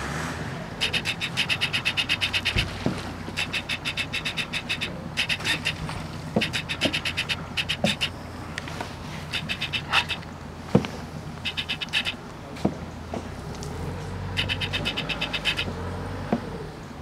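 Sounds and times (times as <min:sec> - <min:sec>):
bird clicking trills: 0:00.8 - 0:08.2, 0:09.3 - 0:10.3, 0:11.4 - 0:12.2, 0:14.3 - 0:15.8.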